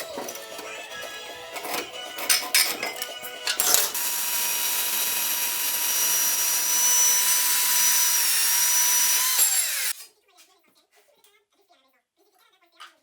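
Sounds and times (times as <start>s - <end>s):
power tool whining: 0.5s - 10.0s
metal clicks: 1.6s - 4.0s.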